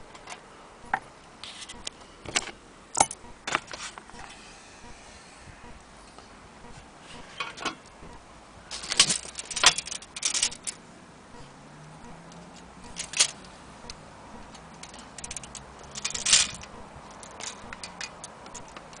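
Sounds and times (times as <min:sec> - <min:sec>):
clock metallic clinking and rattling: 0:08.7 - 0:10.8, 0:12.3 - 0:13.5, 0:14.4 - 0:19.0.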